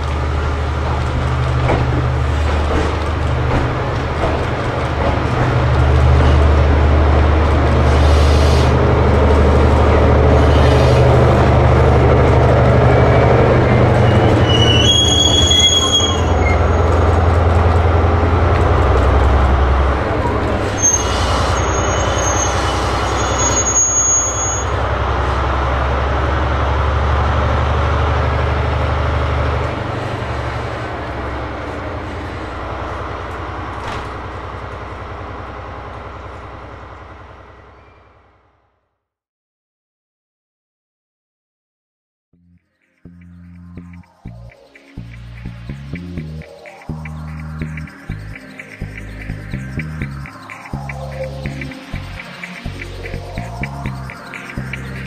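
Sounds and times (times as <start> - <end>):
train running gear rumble: 0.0 - 38.0, 43.2 - 55.0
train wheels squealing: 12.8 - 17.1, 20.6 - 25.2, 37.7 - 38.3.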